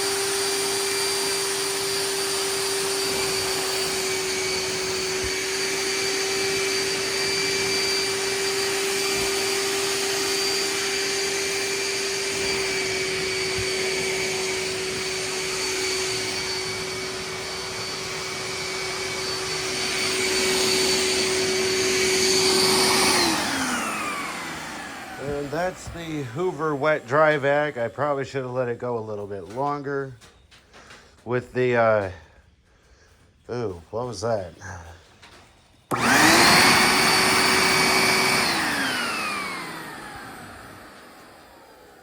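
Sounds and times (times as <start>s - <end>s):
suction hiss: 0.0s - 28.0s
wet dry vacuum motor whining: 0.0s - 32.4s, 33.5s - 42.0s.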